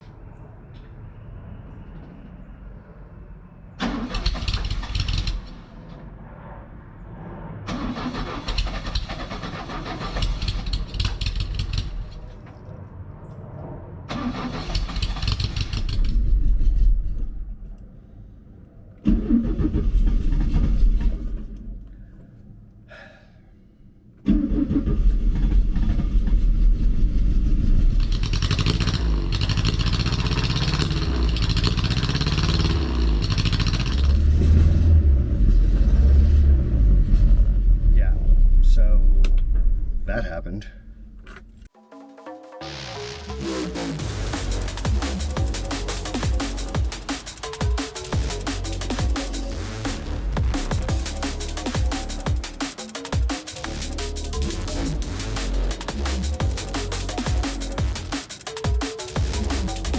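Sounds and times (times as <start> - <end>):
car engine running: 24.3 - 40.1, 43.3 - 59.9.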